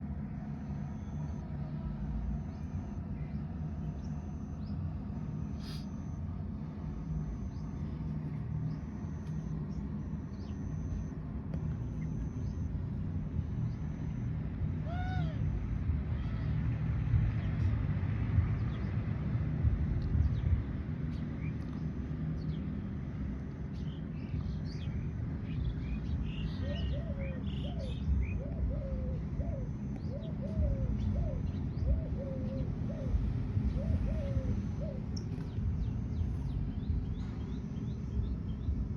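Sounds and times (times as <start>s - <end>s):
steady low rumble: 0.0s - 38.9s
birds calling: 2.3s - 17.7s, 23.6s - 38.9s.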